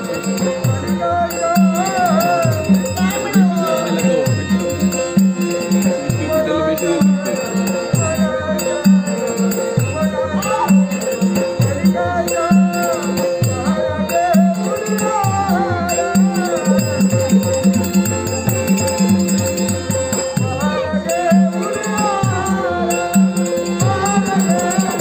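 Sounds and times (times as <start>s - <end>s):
wavering melody: 0.0s - 25.0s.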